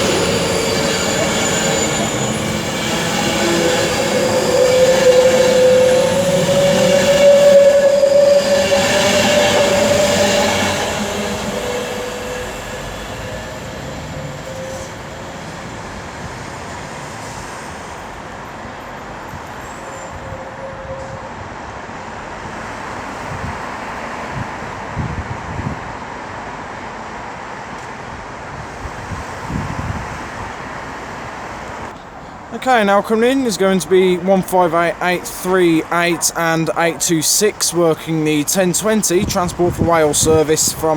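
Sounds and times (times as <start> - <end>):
train whine: 0.0 - 21.4, 31.9 - 40.9.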